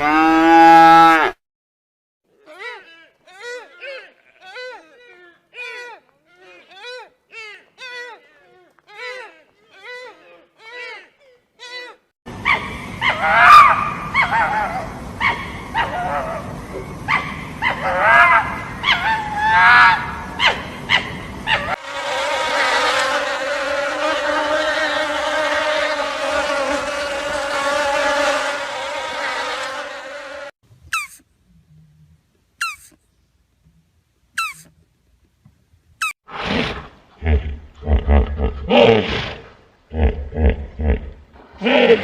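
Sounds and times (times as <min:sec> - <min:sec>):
pitch-bending animal calls: 0:30.9 - 0:31.2, 0:32.6 - 0:33.0, 0:34.4 - 0:34.7.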